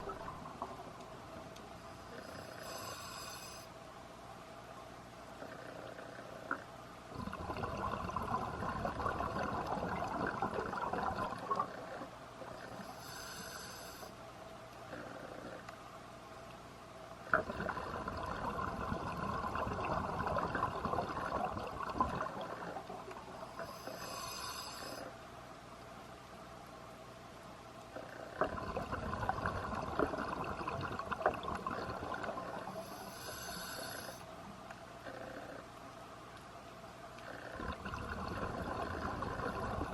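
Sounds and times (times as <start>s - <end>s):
exhaled bubbles gurgling: 0.0s - 0.9s, 5.4s - 13.0s, 17.3s - 25.0s, 28.0s - 34.1s, 37.2s - 39.9s
regulator hissing inhale: 2.0s - 3.7s, 12.7s - 14.2s, 23.4s - 25.1s, 32.7s - 34.3s.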